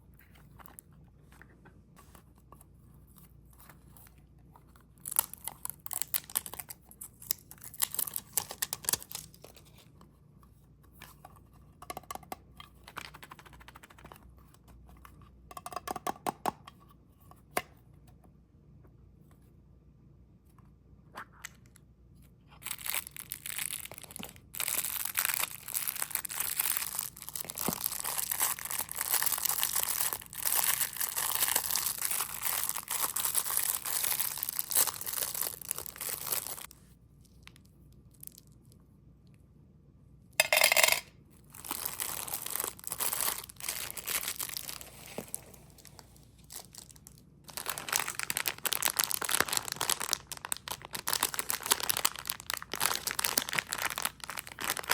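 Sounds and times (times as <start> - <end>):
wrappers crinkling and tearing: 5.0 - 9.6, 22.6 - 36.7, 41.5 - 54.9.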